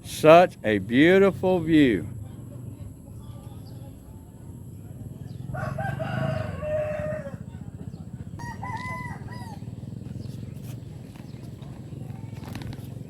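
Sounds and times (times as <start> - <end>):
rooster crowing: 5.5 - 7.6, 8.4 - 9.7.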